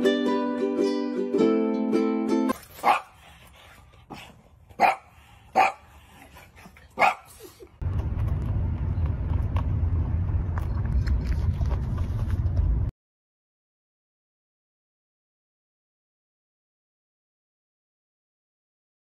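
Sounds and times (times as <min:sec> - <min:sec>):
dog barking: 0:02.8 - 0:03.2, 0:04.8 - 0:06.0, 0:07.0 - 0:07.4
steady low rumble: 0:07.8 - 0:12.9.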